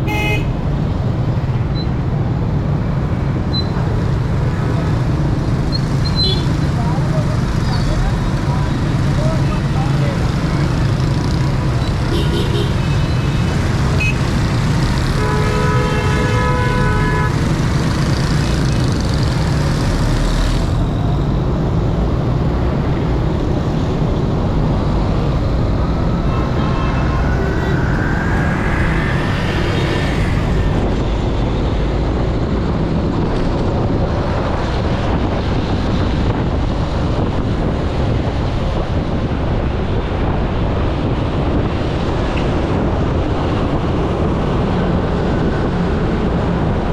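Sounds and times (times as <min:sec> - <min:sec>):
vehicle horns honking: 0:00.0 - 0:00.6, 0:12.1 - 0:14.3, 0:15.0 - 0:17.7, 0:26.2 - 0:27.8
road traffic rumble: 0:00.0 - 0:46.9
rising whine: 0:24.8 - 0:32.0.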